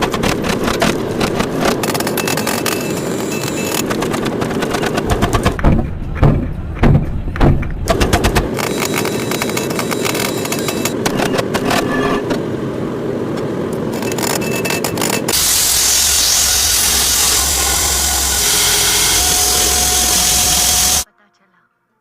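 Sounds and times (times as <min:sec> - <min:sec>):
machinery rumbling with clicks: 0:00.0 - 0:21.0
loud grinding hiss: 0:15.3 - 0:21.1.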